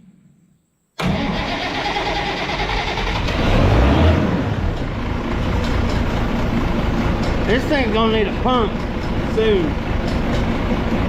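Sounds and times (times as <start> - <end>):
tractor engine drone: 1.0 - 11.0.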